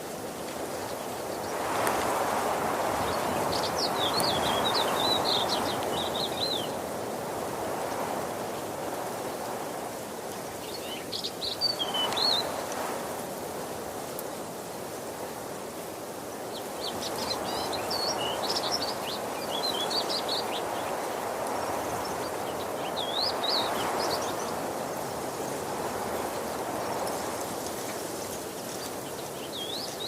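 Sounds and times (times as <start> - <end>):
songbird twittering: 3.1 - 6.8, 16.5 - 24.6.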